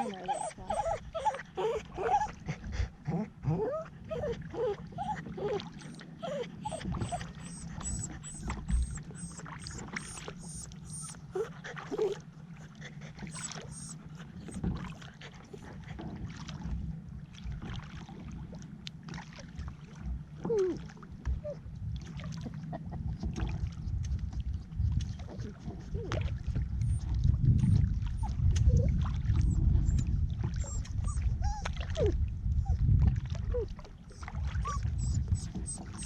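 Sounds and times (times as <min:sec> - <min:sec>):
dog whimpering: 0:00.0 - 0:02.5, 0:03.1 - 0:12.2, 0:13.3 - 0:14.7, 0:26.8 - 0:32.8, 0:33.5 - 0:36.0.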